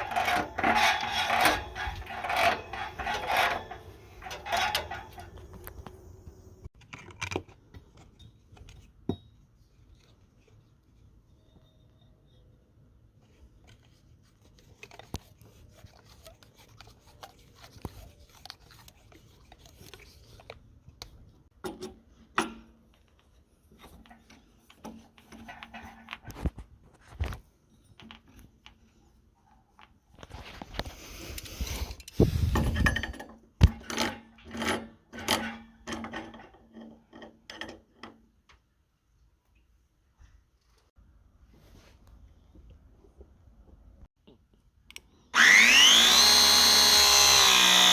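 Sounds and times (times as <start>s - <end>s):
metal tools scraping and knocking: 0.0s - 6.0s, 31.8s - 38.2s.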